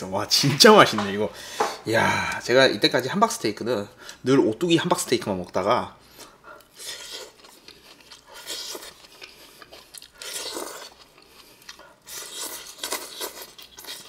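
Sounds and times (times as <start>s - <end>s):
person chewing and crunching: 5.4s - 14.0s.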